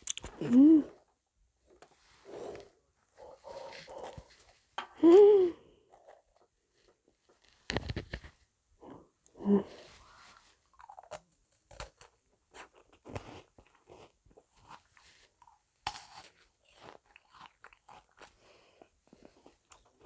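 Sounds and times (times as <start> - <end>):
meringue cookies crunching: 10.7 - 20.0.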